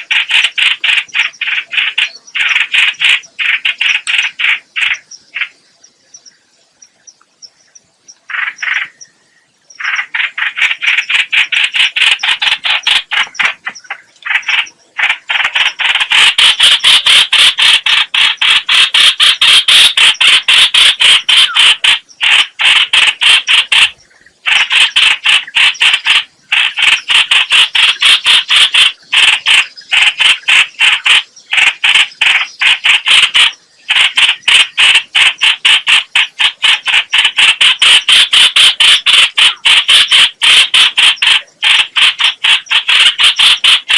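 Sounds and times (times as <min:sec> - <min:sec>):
bird chattering harshly: 0:00.0 - 0:05.6, 0:08.3 - 0:09.0, 0:09.8 - 0:43.9.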